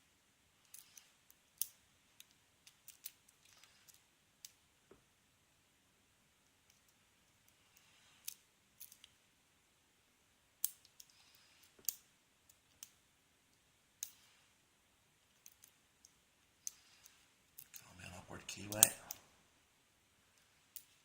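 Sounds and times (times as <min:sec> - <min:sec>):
lock pick metallic clicks: 0:15.4 - 0:17.8.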